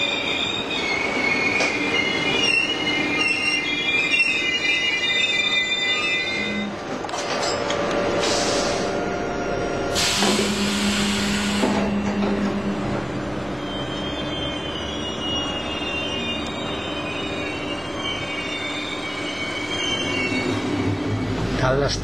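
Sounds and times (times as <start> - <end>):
high wheel and brake squeal: 0.0 - 6.7, 10.4 - 21.8
train running: 0.0 - 22.0
loud hiss: 9.9 - 11.8.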